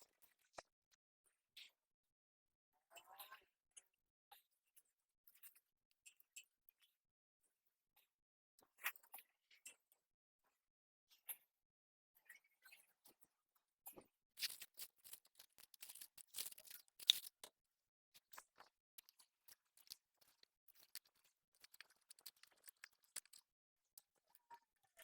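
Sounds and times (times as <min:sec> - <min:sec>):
hands rustling plants and soil: 0:14.4 - 0:17.5.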